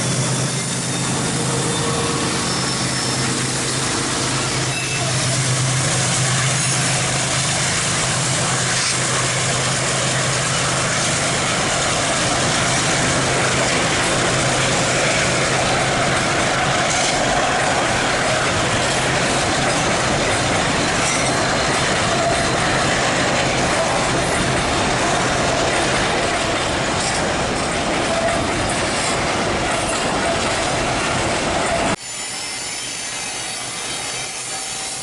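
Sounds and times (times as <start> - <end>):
faint wheel squeal: 0.0 - 3.6, 4.4 - 5.4, 32.0 - 35.0
diesel locomotive hum: 0.0 - 35.0
train wagons rolling on rails: 0.0 - 35.0.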